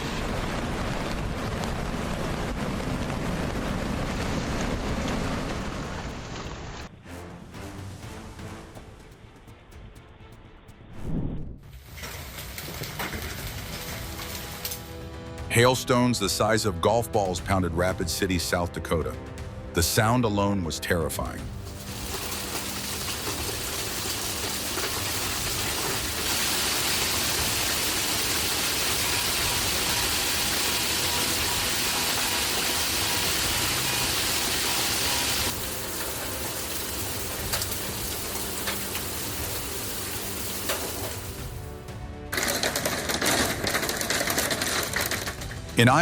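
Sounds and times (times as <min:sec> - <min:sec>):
hail pounding down: 0:00.0 - 0:06.9, 0:11.7 - 0:15.8, 0:21.5 - 0:46.0.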